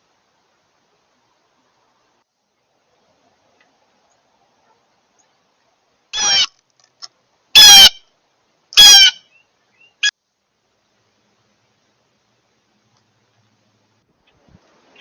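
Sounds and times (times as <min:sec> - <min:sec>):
bird calling harshly: 0:06.1 - 0:06.6, 0:07.6 - 0:08.0, 0:08.8 - 0:10.1.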